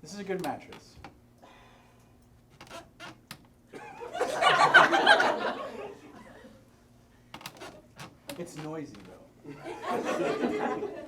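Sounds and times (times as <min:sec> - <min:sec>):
audience laughing: 0:03.8 - 0:06.6, 0:09.5 - 0:11.0.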